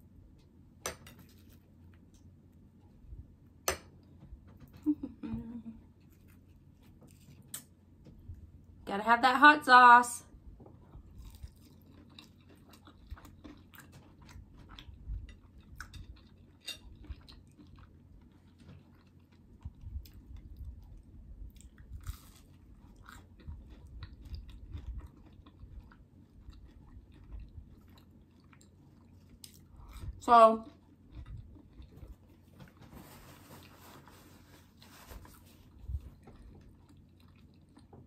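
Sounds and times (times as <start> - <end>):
person crunching fried food: 11.0 - 32.5.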